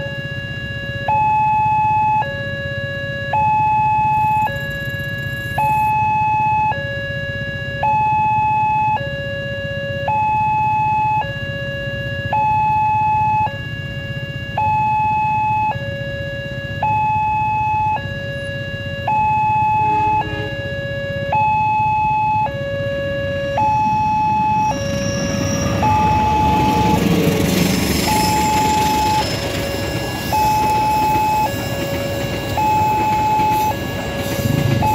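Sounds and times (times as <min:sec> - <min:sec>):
two-tone crossing alarm: 0:00.0 - 0:34.9
rushing noise: 0:23.7 - 0:34.9.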